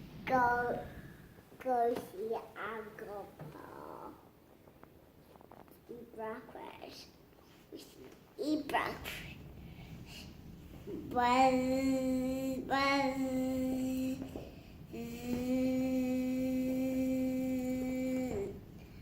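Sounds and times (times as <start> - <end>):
child singing held notes: 10.9 - 18.7.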